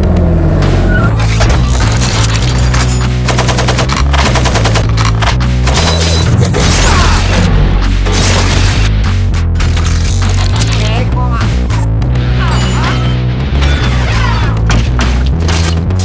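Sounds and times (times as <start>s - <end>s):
music with heavy bass: 0.0s - 16.0s
machine gun bursts: 1.6s - 7.3s.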